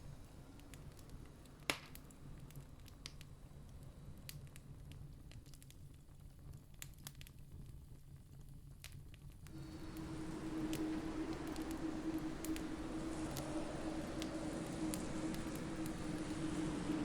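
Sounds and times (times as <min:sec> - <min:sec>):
campfire crackling: 0:09.5 - 0:17.0
faint low rumble: 0:09.5 - 0:17.0.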